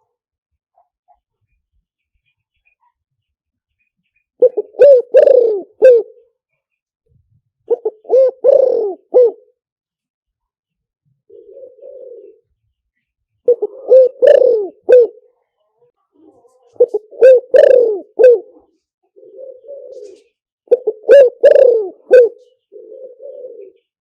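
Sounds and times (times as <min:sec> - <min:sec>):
dove cooing: 0:04.4 - 0:06.3, 0:07.7 - 0:09.6, 0:11.2 - 0:12.6, 0:13.5 - 0:15.3, 0:16.2 - 0:24.0.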